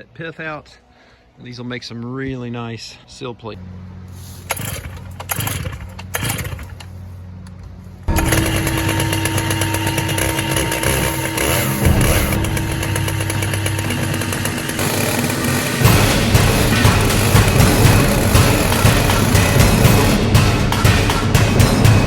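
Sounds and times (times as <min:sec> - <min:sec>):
chainsaw cutting log: 0:04.2 - 0:07.0, 0:08.1 - 0:22.0
low steady hum: 0:06.8 - 0:20.4
knocks: 0:08.1 - 0:22.0.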